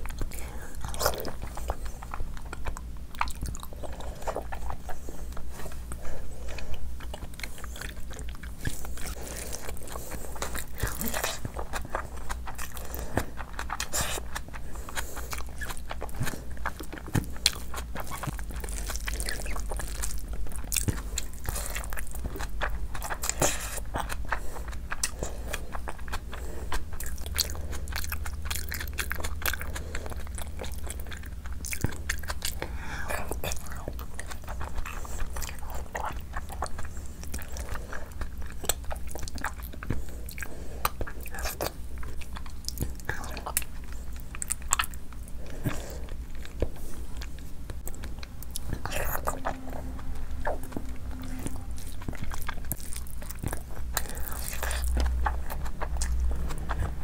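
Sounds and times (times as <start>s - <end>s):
close chewing and mouth sounds: 0.0s - 57.0s
low hum: 41.6s - 57.0s.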